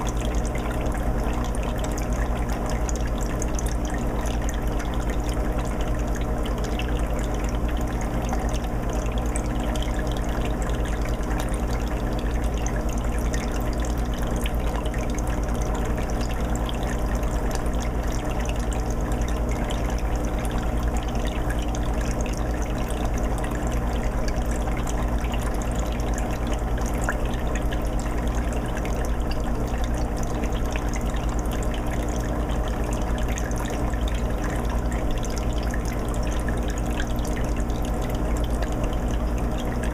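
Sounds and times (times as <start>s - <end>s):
aquarium water trickling and bubbling: 0.0s - 39.9s.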